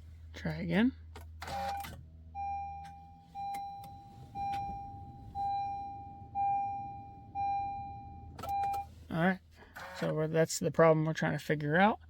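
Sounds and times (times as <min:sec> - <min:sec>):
dashboard warning chime: 0:01.5 - 0:09.0.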